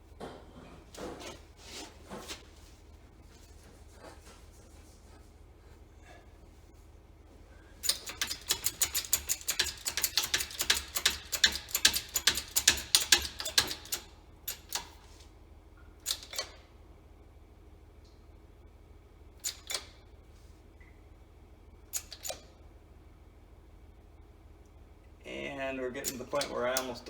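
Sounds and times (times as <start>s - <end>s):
rapid metallic clicks: 7.8s - 14.9s.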